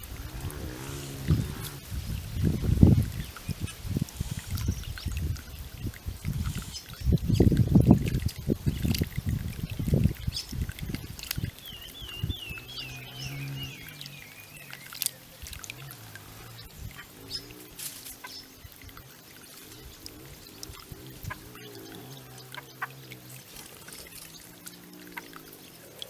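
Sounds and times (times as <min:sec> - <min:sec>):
birds bathing splashing: 0:00.0 - 0:26.0
water fountain trickling: 0:00.0 - 0:26.0.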